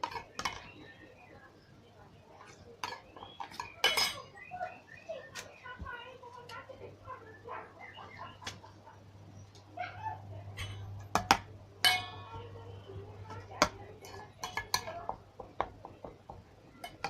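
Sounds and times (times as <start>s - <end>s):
utensil knocking against a bowl: 13.3s - 17.0s.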